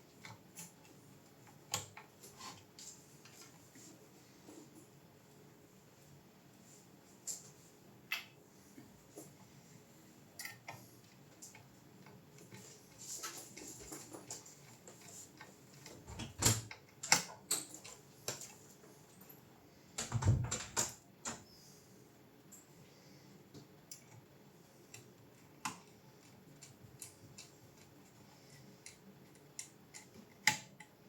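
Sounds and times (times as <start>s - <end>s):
sharp clicks and light knocks: 10.4s - 18.7s, 24.9s - 31.0s.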